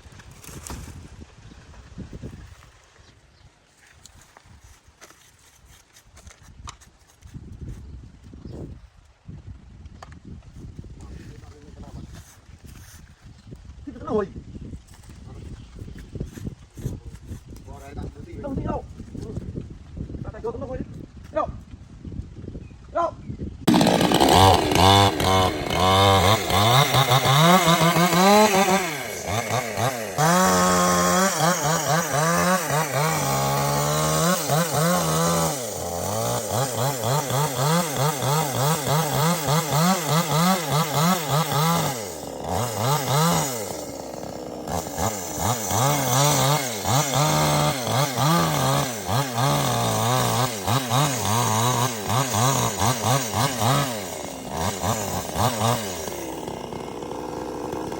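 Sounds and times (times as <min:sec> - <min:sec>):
chainsaw cutting wood: 0:23.6 - 0:57.9.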